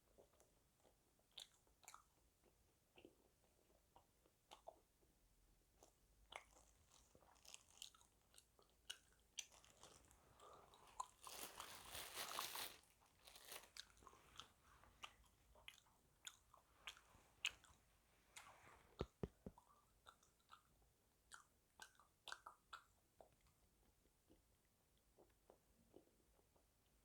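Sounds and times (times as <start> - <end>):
wet chewing clicks: 0.2 - 2.2, 5.8 - 10.0, 13.8 - 17.8, 18.4 - 23.6
food crunching: 6.3 - 17.8.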